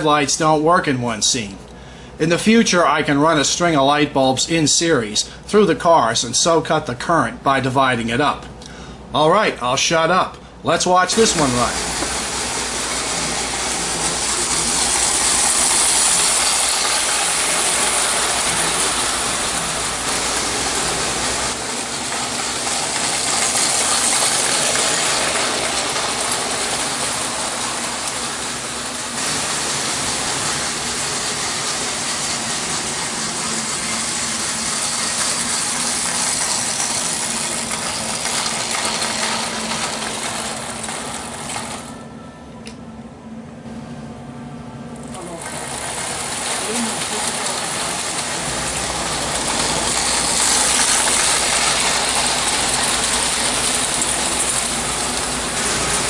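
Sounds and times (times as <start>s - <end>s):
toy train rattling on metal track: 12.9s - 20.3s, 21.4s - 27.2s, 29.2s - 42.0s, 45.1s - 56.0s.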